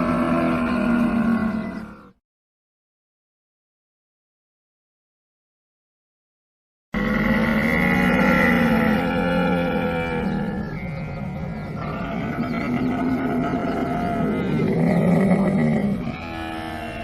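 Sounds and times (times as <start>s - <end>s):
camel calling: 7.0s - 17.0s.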